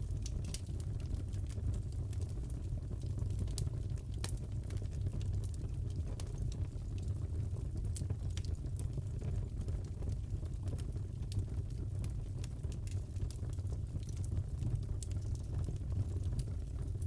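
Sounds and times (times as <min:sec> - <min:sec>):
fire rumbling: 0:00.0 - 0:17.0.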